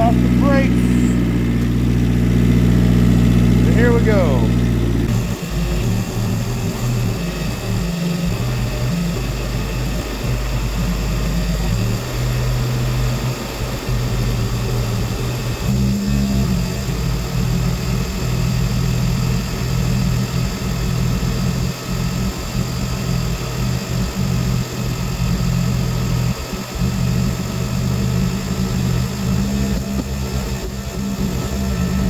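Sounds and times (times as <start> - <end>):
tractor engine running: 0.0 - 15.4.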